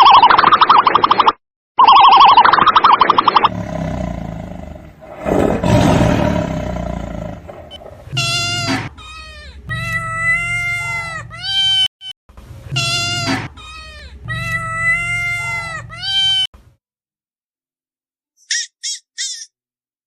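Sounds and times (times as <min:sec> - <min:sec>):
rough low roar: 0:03.5 - 0:08.1
high drawn-out animal cries: 0:07.2 - 0:11.8, 0:18.4 - 0:19.5.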